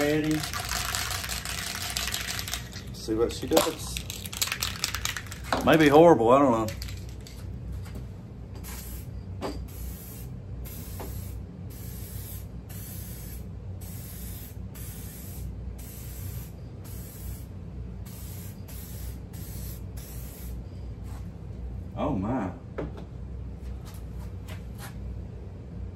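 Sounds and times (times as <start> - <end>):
aerosol can spraying bursts: 9.7 - 17.5, 18.1 - 20.6.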